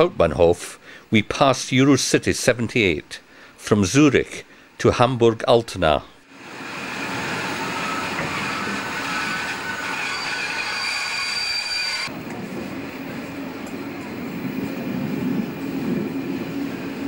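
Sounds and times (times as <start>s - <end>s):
train rolling rumble: 6.3s - 17.0s
train wheel squeal: 6.8s - 12.1s.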